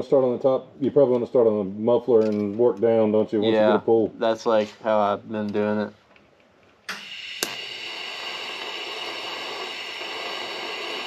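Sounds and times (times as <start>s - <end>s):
welding arc hissing: 6.9s - 11.0s.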